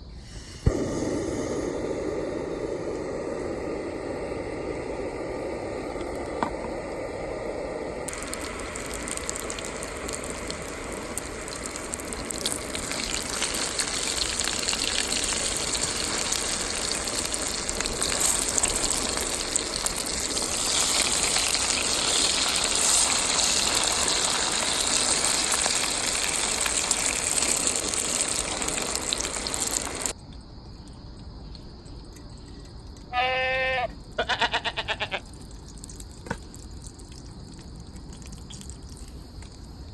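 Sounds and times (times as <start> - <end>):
water gushing: 0.6 - 30.1
short high-pitched squeal: 33.1 - 33.9.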